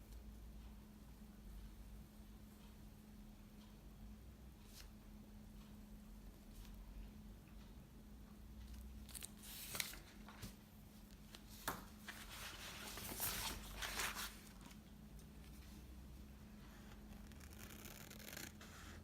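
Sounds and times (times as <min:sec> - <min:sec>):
low room hum: 0:00.0 - 0:19.0
paper and tape rustling and tearing: 0:12.0 - 0:14.8.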